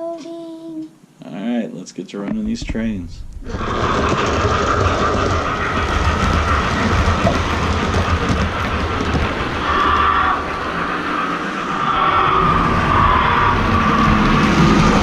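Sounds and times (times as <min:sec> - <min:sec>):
model train running on track: 0:03.5 - 0:15.0.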